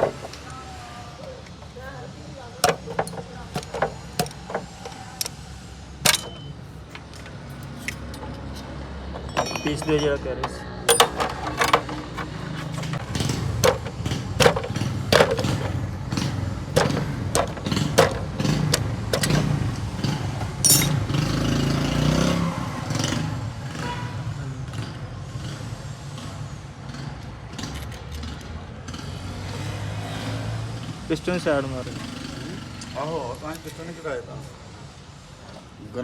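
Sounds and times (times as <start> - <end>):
metal tools clinking: 2.6 - 5.4, 6.0 - 15.8, 16.7 - 19.6, 20.6 - 21.2
engine running: 10.9 - 22.2.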